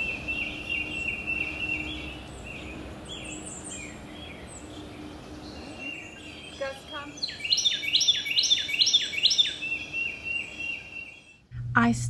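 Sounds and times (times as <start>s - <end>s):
birds calling: 0.0s - 11.5s
faint low hum: 11.4s - 12.0s.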